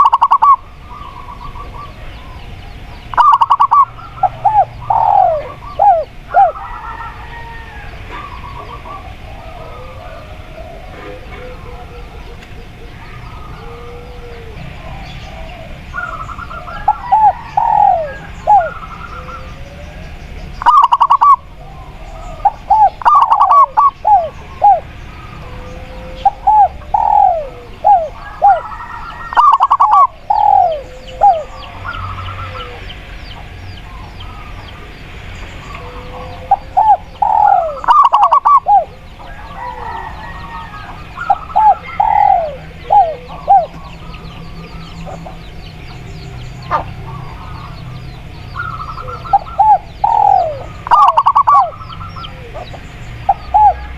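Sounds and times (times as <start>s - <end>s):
doves cooing: 0.0s - 53.9s
small birds chirping: 0.0s - 53.9s.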